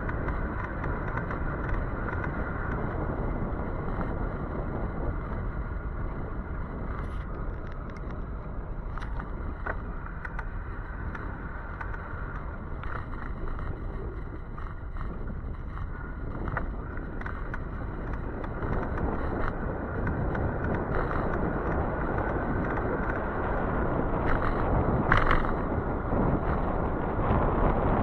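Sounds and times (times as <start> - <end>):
small ticks: 0.0 - 27.8
road and wind noise: 0.0 - 28.0.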